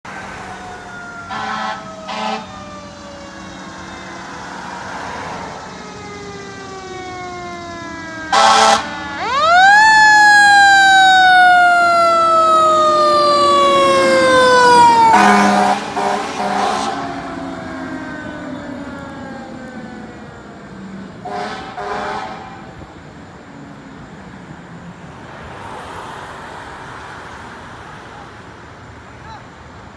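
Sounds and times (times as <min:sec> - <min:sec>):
fire engine siren: 0:00.0 - 0:25.1
road noise: 0:00.0 - 0:29.9
air horn blasts: 0:01.3 - 0:02.8, 0:08.3 - 0:09.7, 0:13.8 - 0:17.8, 0:21.2 - 0:22.7.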